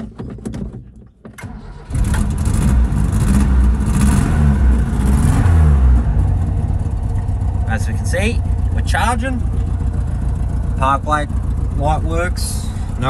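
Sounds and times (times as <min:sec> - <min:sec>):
car engine starting and revving: 0:01.4 - 0:13.0.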